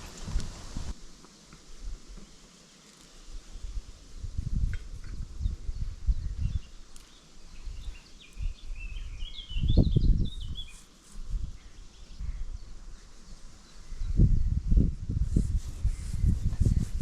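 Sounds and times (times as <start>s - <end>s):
songbird chirping and warbling: 5.4s - 10.9s.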